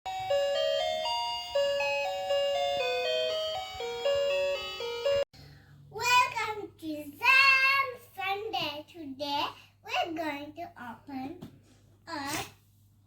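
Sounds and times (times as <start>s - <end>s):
jingle melody of held notes: 0.1s - 5.3s.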